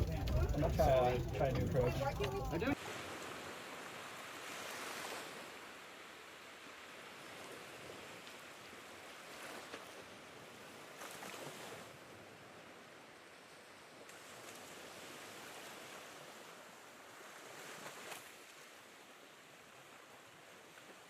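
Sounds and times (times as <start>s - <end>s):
sea water washing: 0.0s - 12.0s
wind: 0.0s - 21.0s.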